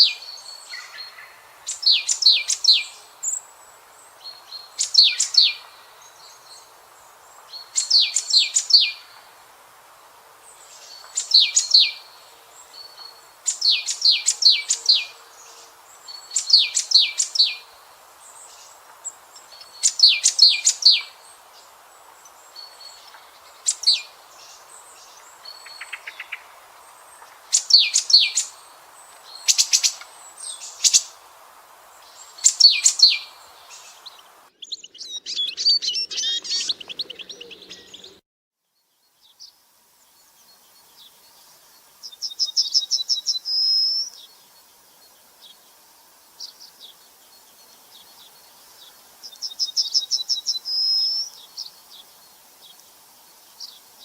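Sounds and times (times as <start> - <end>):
bird chatter: 22.5 - 31.2
sharp high bird chirps: 32.0 - 38.2.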